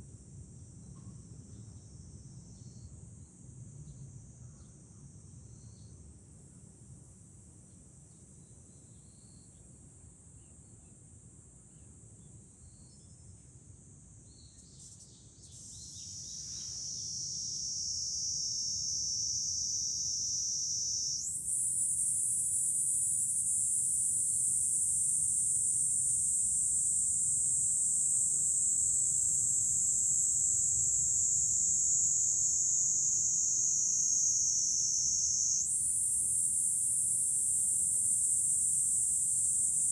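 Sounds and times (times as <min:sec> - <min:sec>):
cicadas buzzing: 0:14.7 - 0:39.9.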